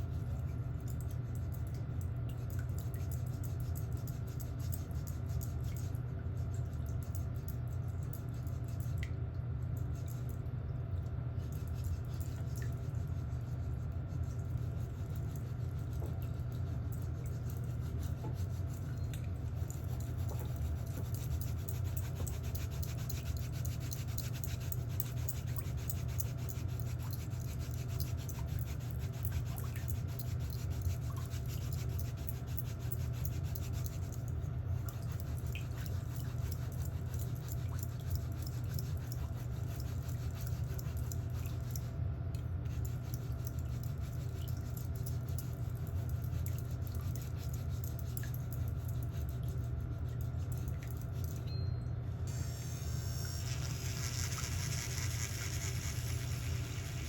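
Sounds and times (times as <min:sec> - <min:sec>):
drill bit grinding toenail: 0:52.3 - 0:57.0
electric nail drill humming: 0:52.3 - 0:57.0.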